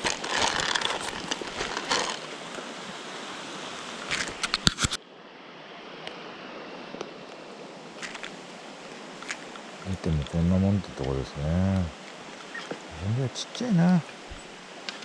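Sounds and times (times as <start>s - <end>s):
rustling: 0.0s - 2.2s
stream water rushing: 0.0s - 15.0s.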